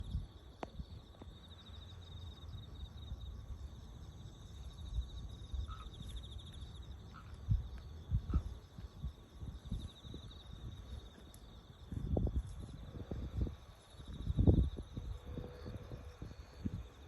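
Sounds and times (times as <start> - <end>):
low rumble of wind: 0.0 - 17.0
insect trilling: 4.8 - 8.6.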